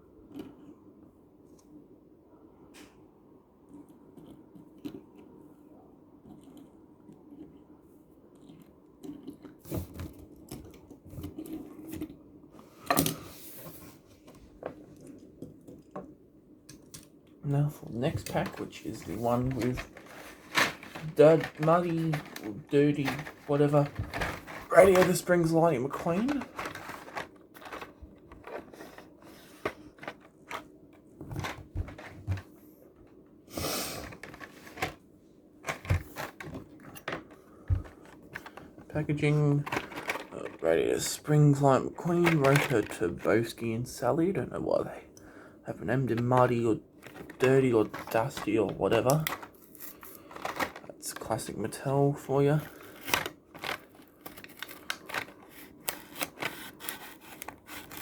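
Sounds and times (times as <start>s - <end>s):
plastic rustling: 17.9s - 32.6s, 34.0s - 43.3s, 46.0s - 58.0s.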